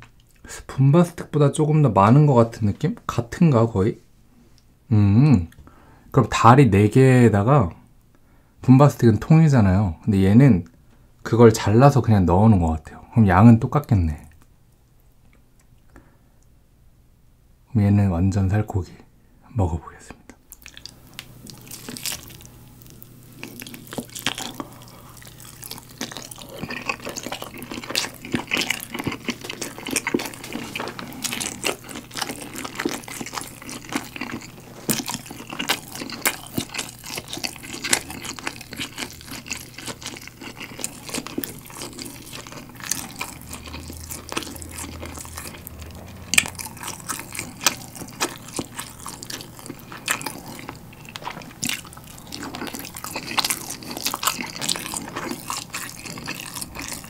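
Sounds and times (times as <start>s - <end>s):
fingers handling sticky food: 20.5s - 57.0s
wet chewing: 20.5s - 57.0s.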